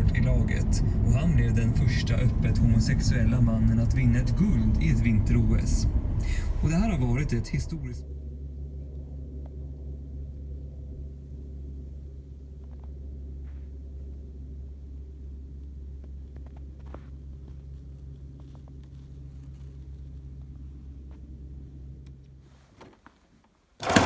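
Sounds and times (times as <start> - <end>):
low engine hum: 0.0 - 24.0.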